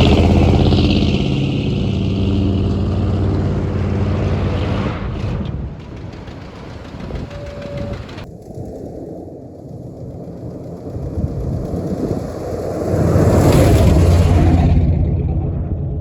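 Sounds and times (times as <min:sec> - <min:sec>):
pickup engine running: 0:00.0 - 0:08.3.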